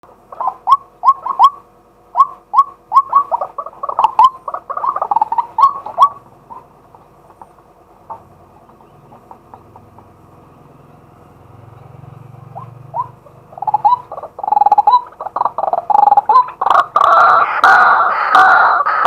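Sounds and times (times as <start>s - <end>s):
waterhen harsh calls: 0.3s - 7.1s, 12.6s - 19.0s.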